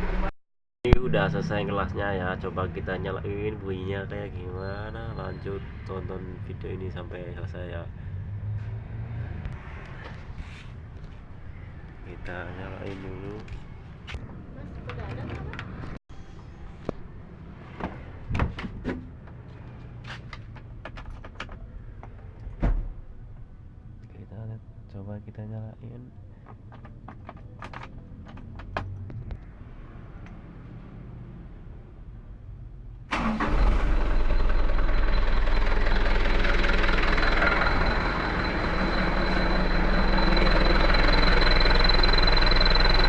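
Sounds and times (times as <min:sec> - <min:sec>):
knocks and clunks: 0:26.4 - 0:29.4
truck engine starting and idling: 0:33.1 - 0:43.0
thin high whine: 0:37.1 - 0:43.0.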